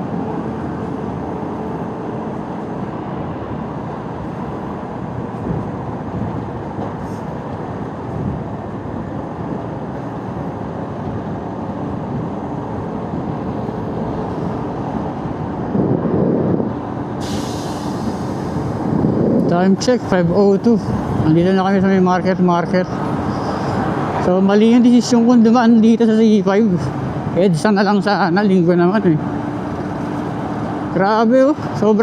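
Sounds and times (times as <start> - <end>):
road noise: 0.0 - 32.0
wind noise: 0.0 - 32.0
short hiss: 17.2 - 18.6.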